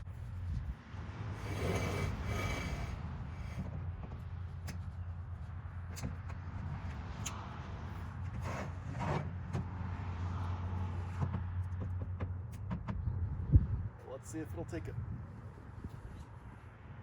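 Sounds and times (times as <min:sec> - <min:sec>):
metal ramp scraping: 0:01.4 - 0:03.8.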